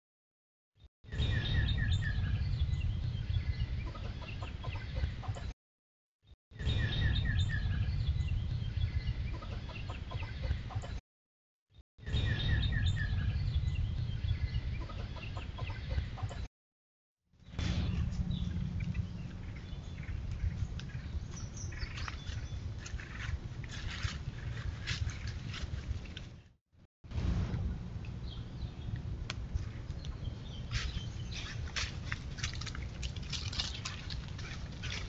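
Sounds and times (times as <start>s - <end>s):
steady low rumble: 1.1s - 4.2s, 6.6s - 9.4s, 12.1s - 15.0s, 17.4s - 26.3s, 27.1s - 35.0s.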